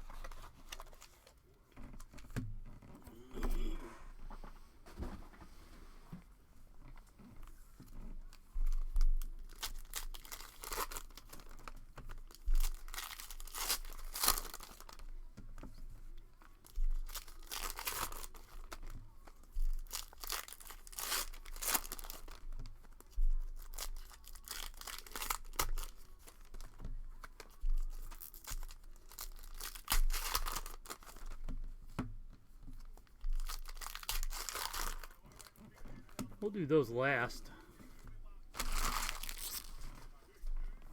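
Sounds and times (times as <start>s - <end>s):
wrappers tearing and crinkling: 0.0s - 1.4s, 8.7s - 15.1s, 16.4s - 31.5s, 32.8s - 36.2s, 38.0s - 40.1s.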